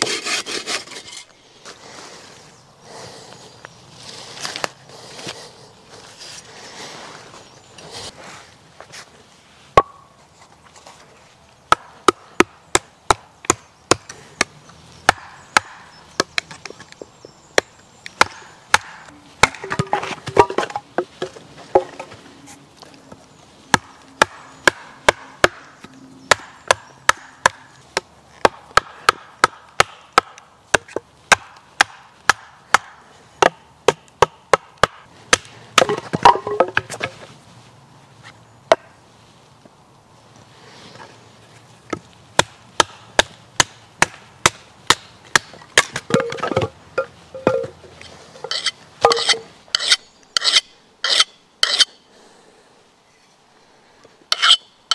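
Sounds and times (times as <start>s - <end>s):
wood being chopped: 9.8s - 10.0s, 11.7s - 22.2s, 23.7s - 25.7s, 26.3s - 37.1s, 41.9s - 47.8s.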